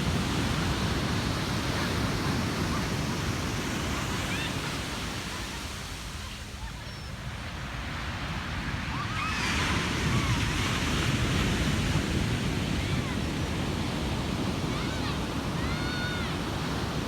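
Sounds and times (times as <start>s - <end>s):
ocean waves breaking on a beach: 0.0s - 17.0s.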